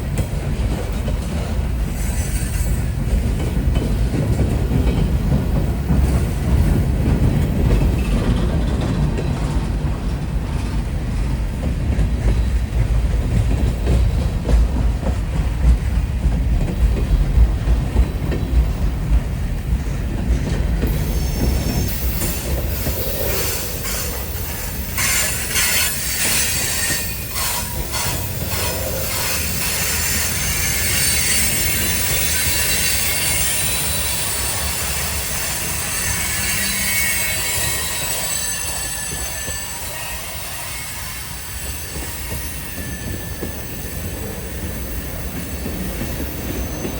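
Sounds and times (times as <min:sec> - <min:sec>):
train cars rumbling and clattering: 0:00.0 - 0:46.9
wheel flanges squealing on rail: 0:01.3 - 0:10.7, 0:17.9 - 0:46.9.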